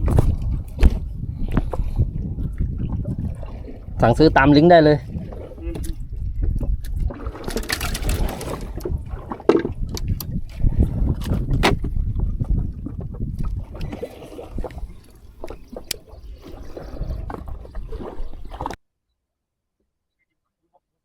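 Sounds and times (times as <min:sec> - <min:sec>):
water sloshing around a boat: 0:00.0 - 0:18.8.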